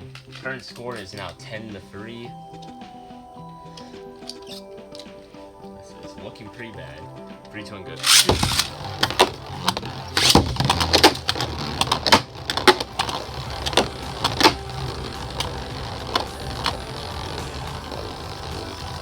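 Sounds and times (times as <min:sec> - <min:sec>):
ripping top launch: 0:08.0 - 0:08.8
spinning tops whirring: 0:08.0 - 0:19.0
tops clashing with sharp clacks: 0:08.0 - 0:19.0.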